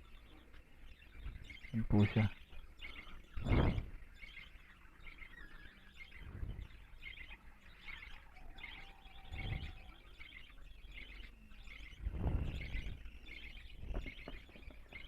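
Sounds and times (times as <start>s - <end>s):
lovebirds chirping: 0.0s - 15.0s.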